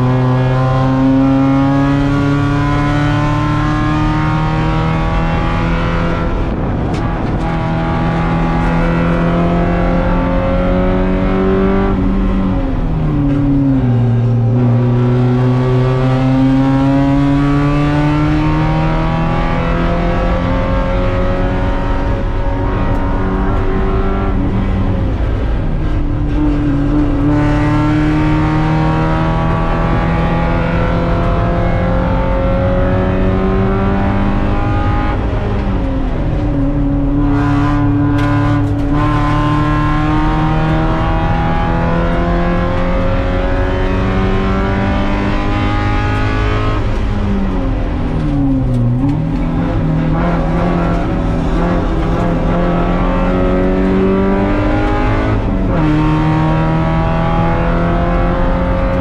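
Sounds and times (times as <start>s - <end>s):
race car engine accelerating: 0.0s - 59.0s.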